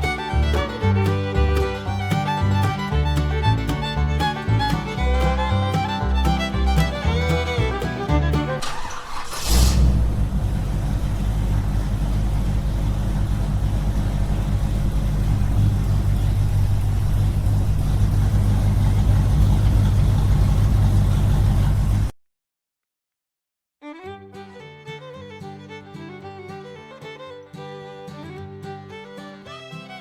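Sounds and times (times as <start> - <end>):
small engine running: 0.0 - 22.1.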